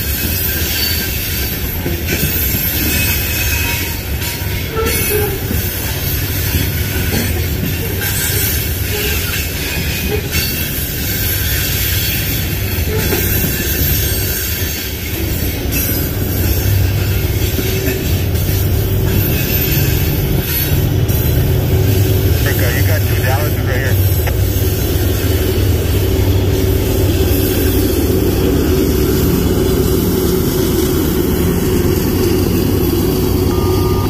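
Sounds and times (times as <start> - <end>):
wheel squeal: 0.0 - 7.1, 7.7 - 20.8
train wheels rumbling on rails: 0.0 - 34.0.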